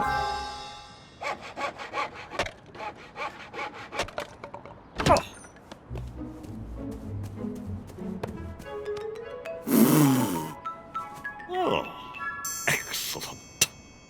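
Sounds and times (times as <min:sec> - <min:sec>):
hand saw cutting wood: 0:01.2 - 0:04.2.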